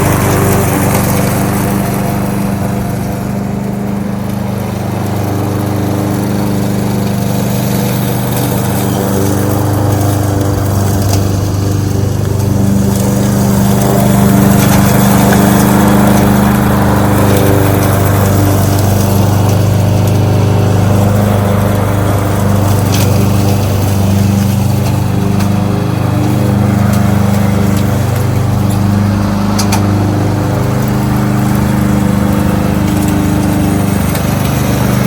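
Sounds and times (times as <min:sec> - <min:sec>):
lawnmower engine running: 0:00.0 - 0:35.0.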